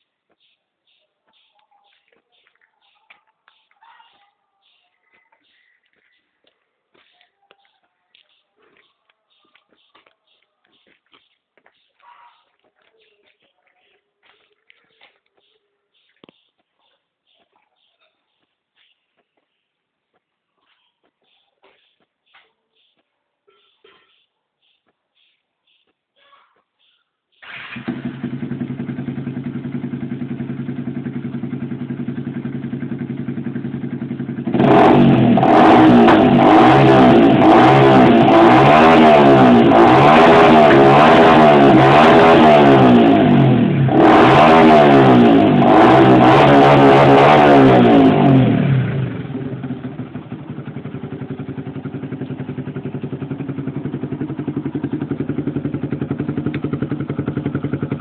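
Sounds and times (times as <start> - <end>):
motorcycle engine idling: 26.8 - 46.6, 47.3 - 58.0
motorcycle throttle blips: 27.4 - 58.0.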